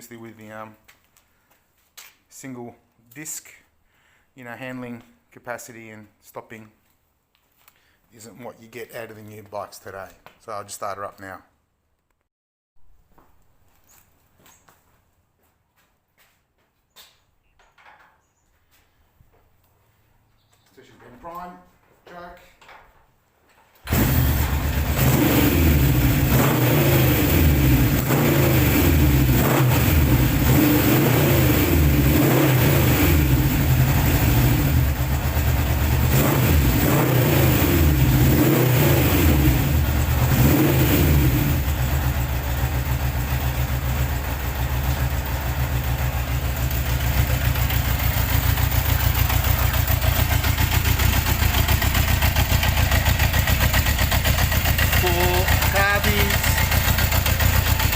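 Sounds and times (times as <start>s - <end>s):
motorcycle engine revving: 23.9s - 57.9s
motorcycle engine idling: 33.0s - 36.8s, 39.4s - 40.4s, 41.2s - 57.9s.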